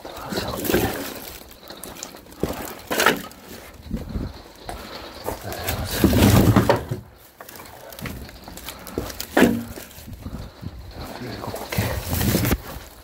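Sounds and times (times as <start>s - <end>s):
thud of wood set down: 5.8s - 7.1s, 9.0s - 10.0s.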